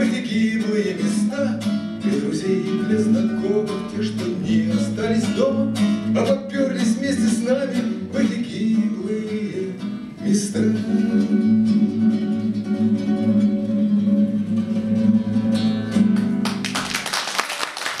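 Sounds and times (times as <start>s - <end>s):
man singing: 0.0s - 12.4s
acoustic guitar: 0.0s - 17.2s
audience clapping: 16.1s - 18.0s.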